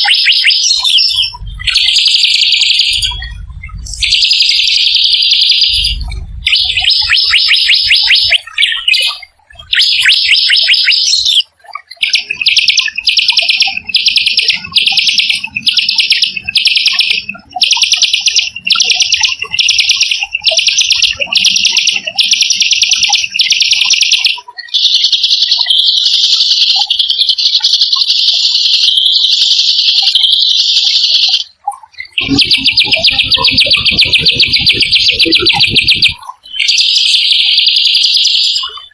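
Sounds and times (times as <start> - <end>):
songbird rolling trills: 32.1 - 36.7.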